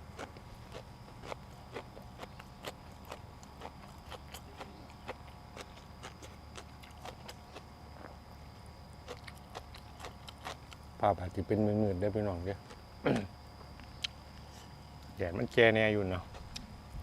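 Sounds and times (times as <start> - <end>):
chewing crunches and mouth smacks: 0.0 - 8.2, 9.0 - 10.9, 16.2 - 17.0
steady low hum: 0.0 - 17.0.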